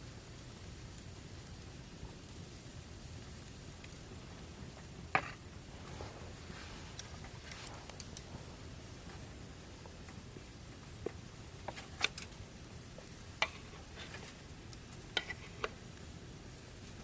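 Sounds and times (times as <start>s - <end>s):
steady low hiss: 0.0s - 17.0s
light clicks and taps: 6.9s - 8.3s.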